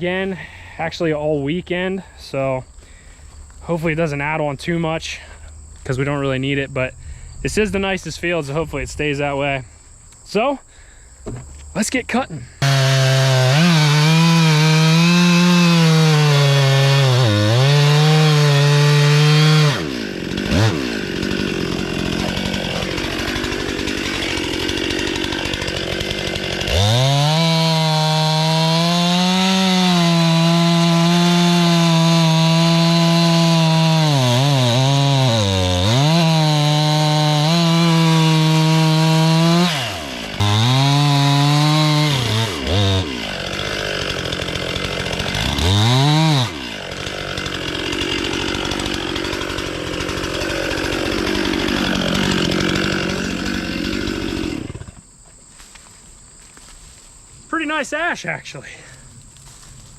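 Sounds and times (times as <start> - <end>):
chainsaw cutting log: 12.6 - 55.1.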